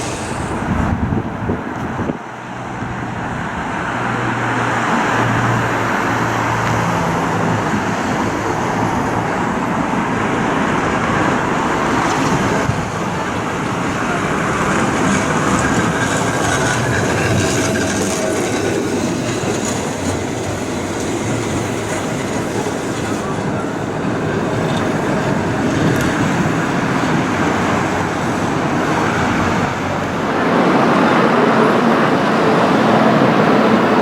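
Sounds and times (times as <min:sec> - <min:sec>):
passing cars: 0:00.0 - 0:34.0
tram wheels rumbling on rails: 0:00.0 - 0:34.0.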